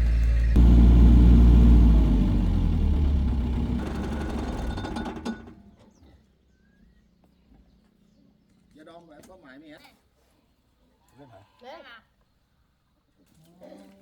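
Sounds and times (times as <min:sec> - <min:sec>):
heavy diesel engine rumbling: 0:00.0 - 0:05.5.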